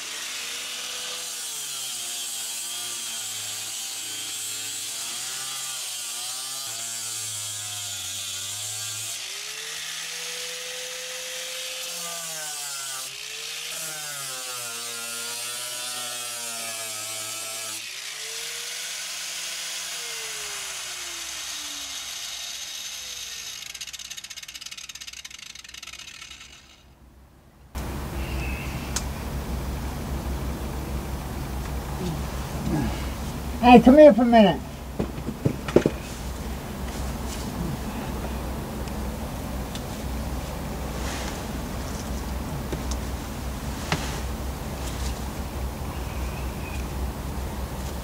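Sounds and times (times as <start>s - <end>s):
angle grinder grinding: 0.0s - 27.0s
abrasive hiss: 27.8s - 29.6s.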